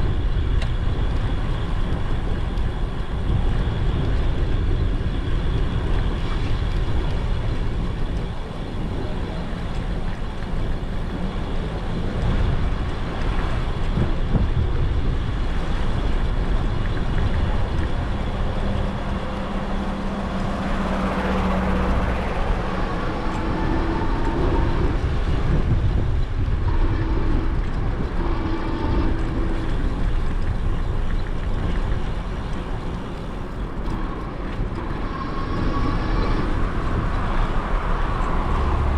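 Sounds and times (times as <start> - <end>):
wind rumbling on microphone: 0.0 - 38.9
road traffic passing: 15.6 - 38.9
passing vehicle hum: 15.7 - 38.9.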